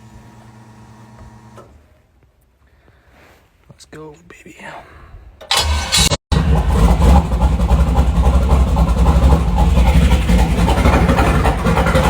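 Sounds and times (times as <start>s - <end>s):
engine cranking and firing: 5.4s - 12.0s
engine running with deep rumble: 5.5s - 12.0s.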